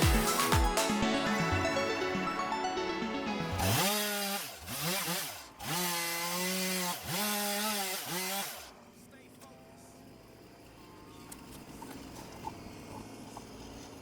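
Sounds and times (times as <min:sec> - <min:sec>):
background music: 0:00.0 - 0:04.1
chainsaw revving: 0:03.4 - 0:08.8.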